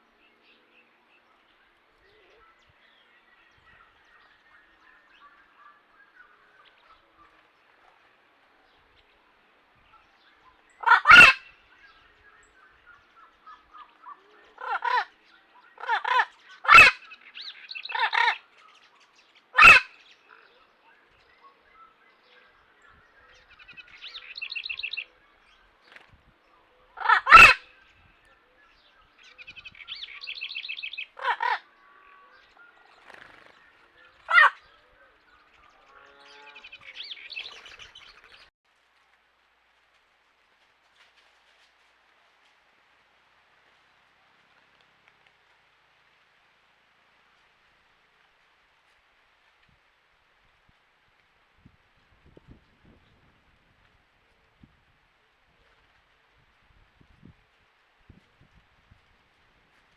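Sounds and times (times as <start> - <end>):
harsh bird calls: 9.9 - 18.8, 19.4 - 20.6, 22.9 - 26.0, 26.8 - 28.1, 28.7 - 38.5
chattering bird trills: 10.8 - 11.5.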